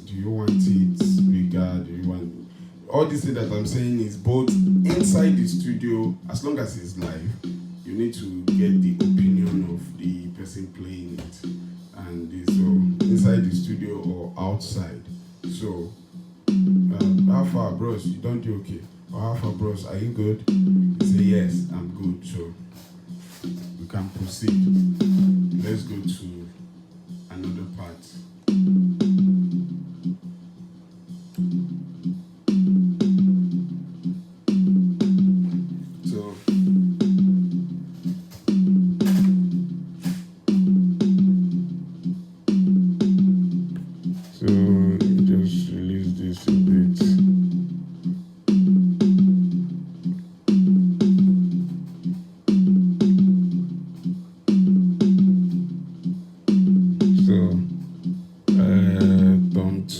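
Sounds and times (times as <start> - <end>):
snare drum spill: 4.5 - 5.6, 37.9 - 41.2
tom drum hits ringing: 38.0 - 41.2.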